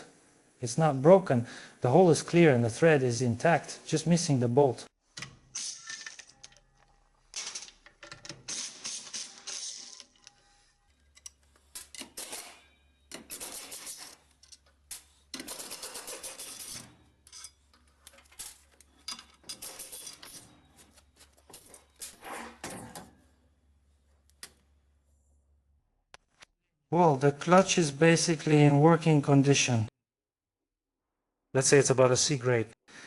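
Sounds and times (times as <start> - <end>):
metal tools clicking and rattling: 11.1 - 20.5.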